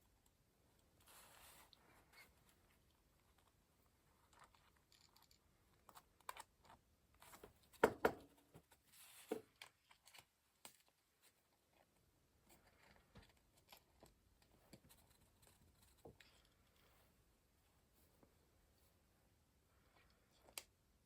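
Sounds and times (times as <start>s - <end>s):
taps and knocks on desk: 7.8s - 8.3s.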